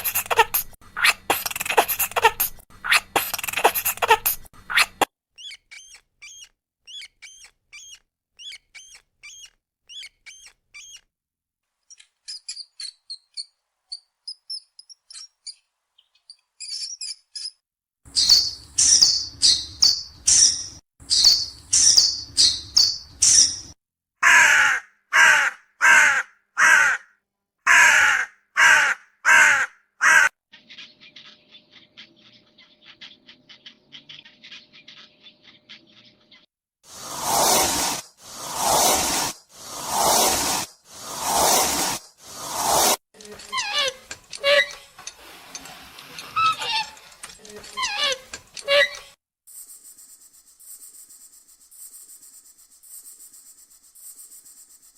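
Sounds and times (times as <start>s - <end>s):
birds chirping and twittering: 0.0s - 11.1s, 11.8s - 23.8s, 30.5s - 36.5s
loud bird calls: 16.3s - 27.0s.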